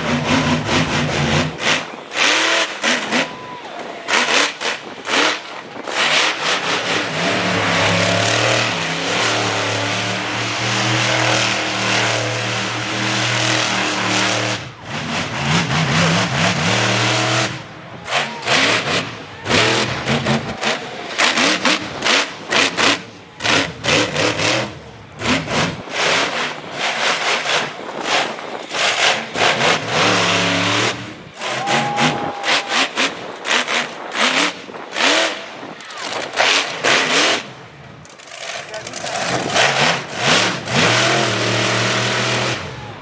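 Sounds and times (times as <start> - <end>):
monster truck engine revving: 0.0 - 43.0.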